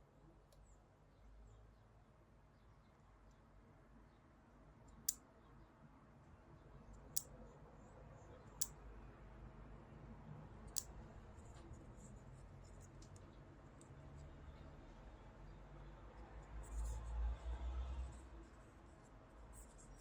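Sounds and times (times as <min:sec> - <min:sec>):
faint low hum: 0:00.0 - 0:20.0
sharp light clicks: 0:08.6 - 0:08.8, 0:10.7 - 0:11.6.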